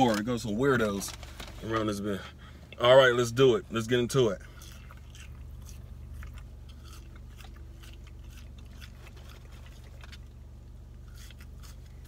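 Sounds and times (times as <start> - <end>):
steady low hum: 0.0 - 12.0
person chewing: 4.4 - 12.0.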